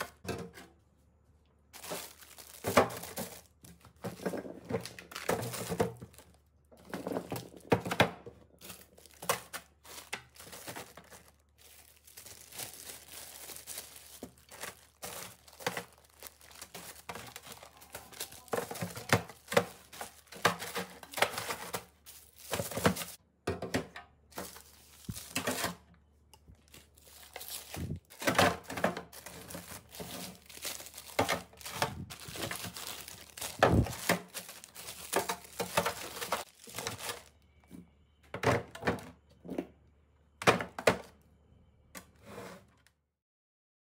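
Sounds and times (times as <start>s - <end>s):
packaging crinkling: 1.8s - 23.2s, 24.3s - 25.8s, 26.5s - 37.4s.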